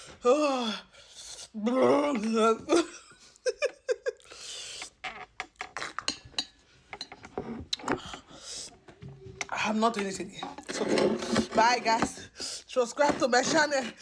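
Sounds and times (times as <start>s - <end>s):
cutlery clinking on dishes: 5.8s - 8.1s.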